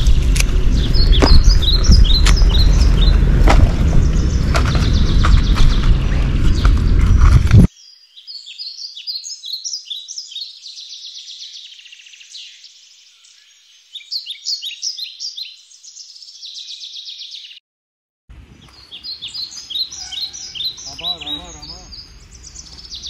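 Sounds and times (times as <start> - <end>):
small birds chirping: 0.6 - 17.6, 18.5 - 23.0.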